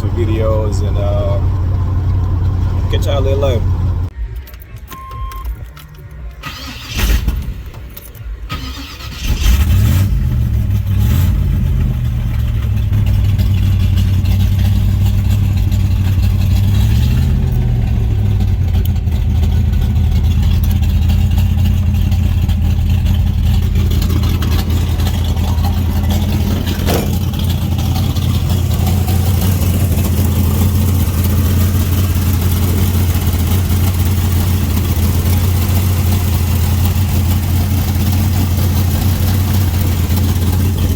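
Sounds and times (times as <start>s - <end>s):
car engine idling: 0.0s - 7.0s, 7.6s - 40.9s
car engine cranking and starting: 0.0s - 40.9s
car engine revving: 8.5s - 40.9s.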